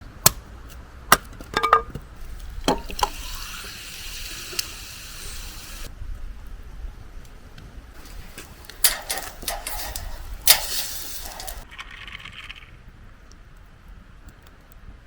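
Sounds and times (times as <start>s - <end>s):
glass clinks and knocks: 1.5s - 2.0s
liquid being poured: 2.3s - 5.9s.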